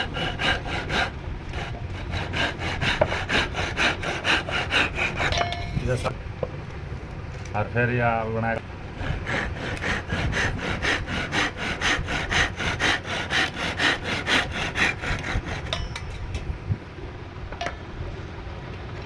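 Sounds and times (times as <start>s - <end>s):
hand tool stroking wood: 0.0s - 6.1s, 9.0s - 15.8s.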